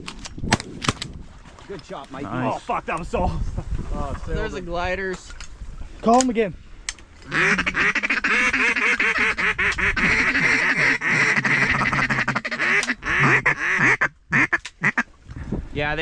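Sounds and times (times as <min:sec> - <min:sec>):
duck call quacks: 0:07.3 - 0:15.1.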